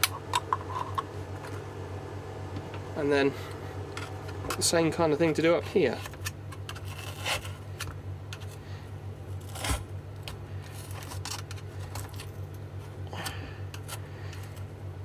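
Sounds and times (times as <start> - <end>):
tools cutting and scraping: 5.3 - 8.6, 9.3 - 9.9, 10.7 - 12.3.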